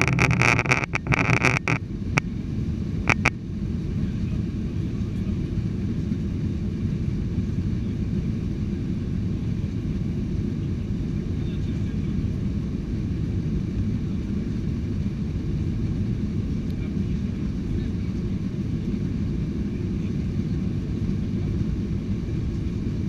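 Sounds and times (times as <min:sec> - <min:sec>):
sharp clicks: 0:00.0 - 0:01.8, 0:03.1 - 0:03.3
airliner cabin rumble: 0:00.0 - 0:23.0.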